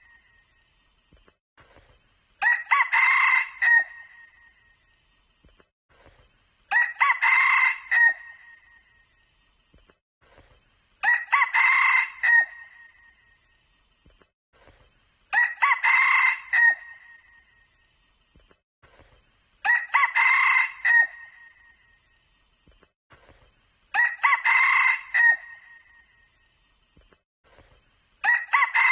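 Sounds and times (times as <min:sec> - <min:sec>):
rooster crowing: 0:02.4 - 0:04.1, 0:06.7 - 0:08.4, 0:11.0 - 0:12.7, 0:15.3 - 0:17.1, 0:19.6 - 0:21.4, 0:23.9 - 0:25.8, 0:28.2 - 0:28.9.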